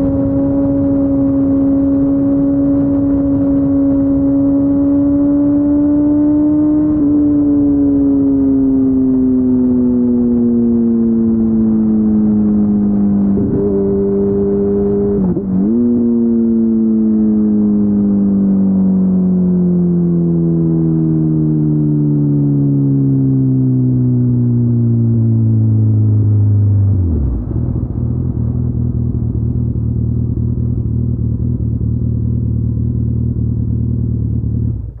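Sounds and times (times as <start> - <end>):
motorcycle engine slowing to idle: 27.5 - 35.0.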